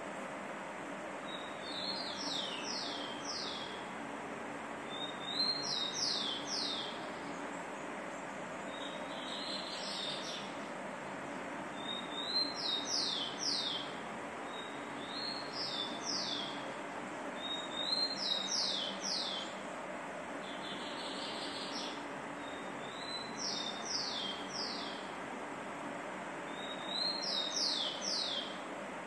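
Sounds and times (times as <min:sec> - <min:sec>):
steady background hiss: 0:00.0 - 0:29.0
bird song with downward notes: 0:01.2 - 0:03.8, 0:04.9 - 0:10.6, 0:11.7 - 0:16.7, 0:17.4 - 0:19.7, 0:20.4 - 0:25.1, 0:26.5 - 0:28.6.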